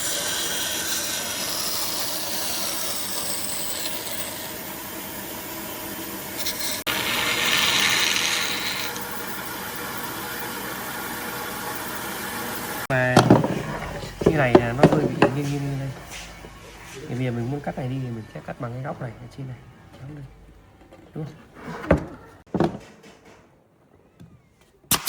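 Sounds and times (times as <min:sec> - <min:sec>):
tool rasping wood: 0:00.0 - 0:04.7, 0:06.4 - 0:10.8.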